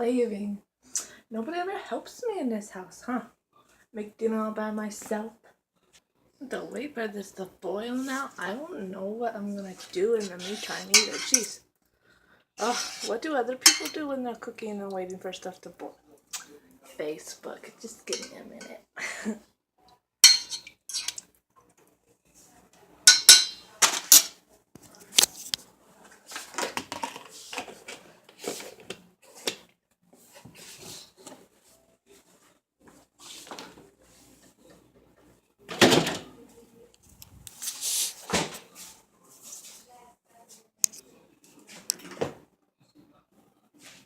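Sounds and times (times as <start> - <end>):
pots and pans clattering: 10.2 - 11.6, 12.6 - 14.0, 18.1 - 18.8, 20.2 - 21.2, 23.1 - 24.4.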